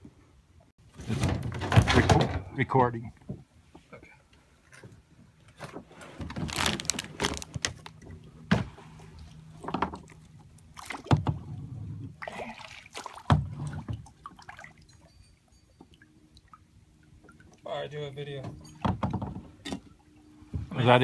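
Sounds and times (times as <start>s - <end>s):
water sloshing: 4.4s - 20.9s
knocks against a kayak: 11.0s - 11.5s, 13.2s - 14.0s, 18.8s - 19.8s.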